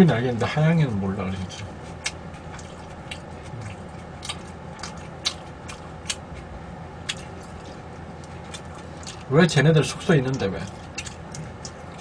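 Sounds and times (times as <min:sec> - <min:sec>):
person chewing: 0:01.4 - 0:09.3, 0:09.9 - 0:12.0
mouth clicks and smacks: 0:01.6 - 0:06.4.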